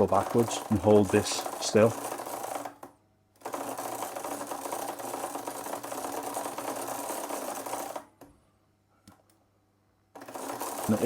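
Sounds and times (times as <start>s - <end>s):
bicycle freewheel clicking: 0.0s - 8.0s, 10.2s - 11.0s.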